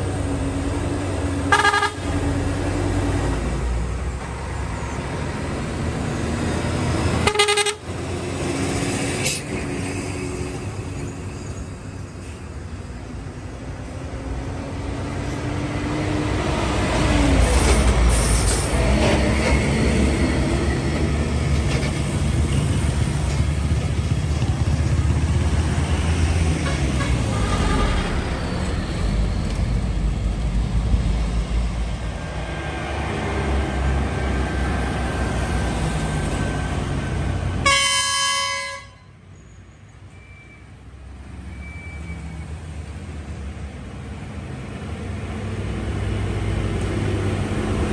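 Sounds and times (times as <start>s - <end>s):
diesel truck engine rumble: 0.0s - 37.7s
air horn blast: 1.5s - 2.1s, 7.2s - 7.8s, 26.6s - 28.2s, 37.6s - 39.1s.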